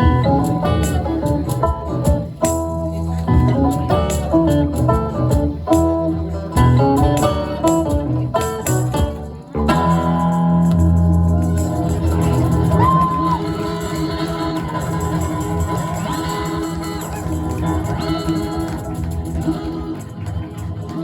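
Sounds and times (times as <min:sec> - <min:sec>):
audience shouting: 0:11.5 - 0:18.8.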